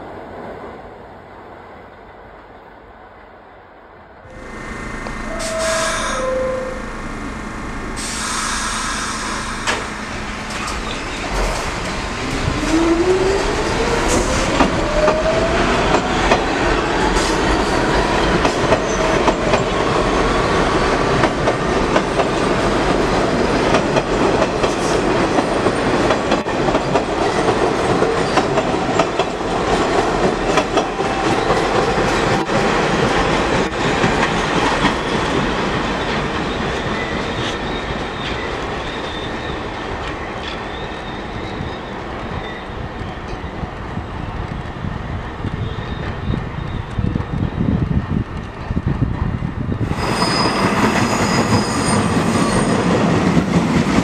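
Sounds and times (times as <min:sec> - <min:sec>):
rising whine: 0:04.3 - 0:15.2
train wheels clicking over rail joints: 0:08.0 - 0:39.0.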